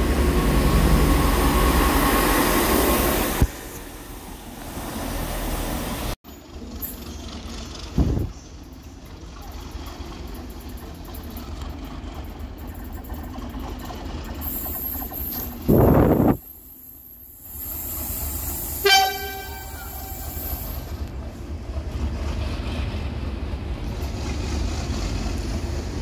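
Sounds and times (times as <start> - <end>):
train engine rumbling: 0.0 - 26.0
train horn blast: 18.8 - 20.3.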